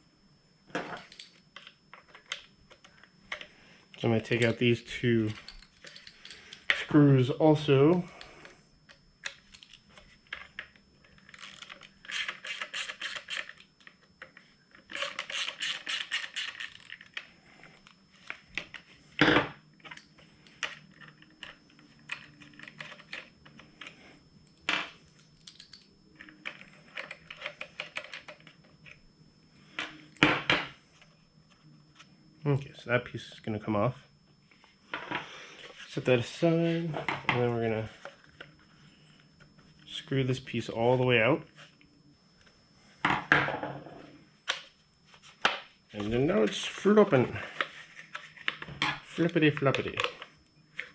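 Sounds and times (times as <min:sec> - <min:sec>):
metallic clinks of screws: 0:00.9 - 0:01.4, 0:25.3 - 0:25.9.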